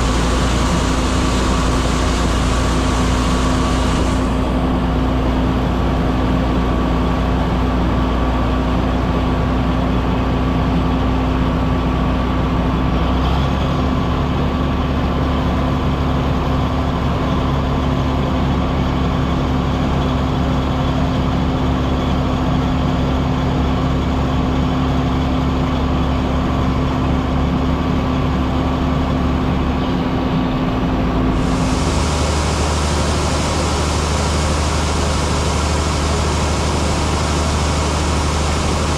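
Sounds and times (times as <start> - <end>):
steady hum: 0.0 - 5.7, 31.1 - 38.9
heavy farm machinery engine drone: 0.0 - 38.9.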